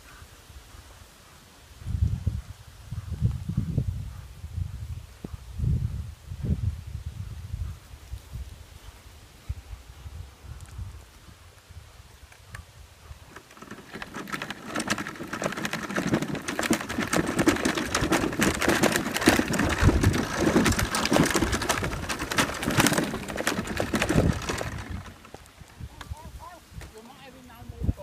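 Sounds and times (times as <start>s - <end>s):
close raindrops ticking: 13.3s - 26.2s.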